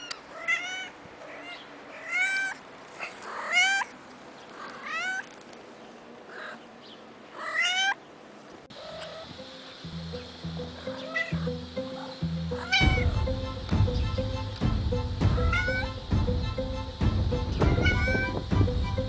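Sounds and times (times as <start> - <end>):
kitten meowing: 15.3 - 16.0, 17.6 - 18.4.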